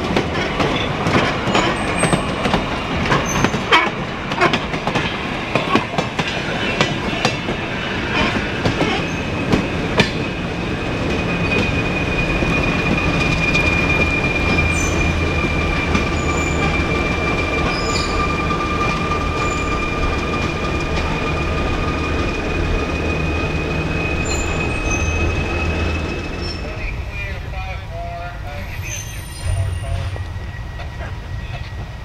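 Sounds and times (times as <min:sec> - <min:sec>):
high-pitched wheel squeal: 0:11.1 - 0:26.9.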